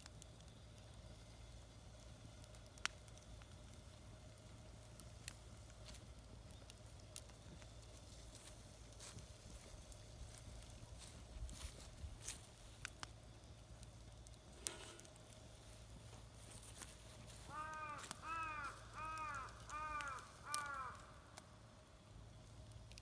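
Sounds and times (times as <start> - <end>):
crow cawing: 17.3 - 21.6.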